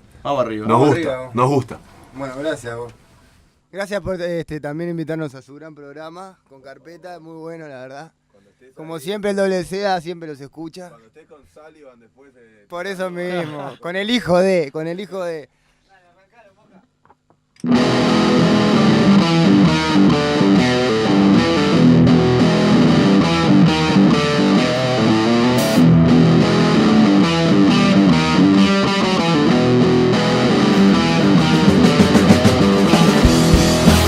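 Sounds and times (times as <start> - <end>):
distorted rock guitar: 17.6 - 34.0.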